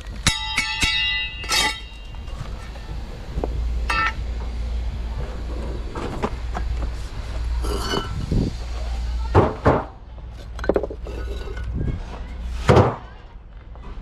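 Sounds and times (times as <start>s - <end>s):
steady low hum: 1.3s - 9.3s.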